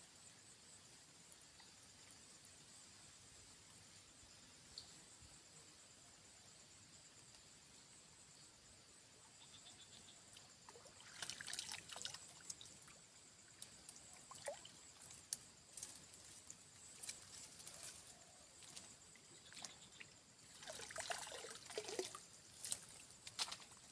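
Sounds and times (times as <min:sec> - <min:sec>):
water trickling and splashing: 0:10.2 - 0:23.9.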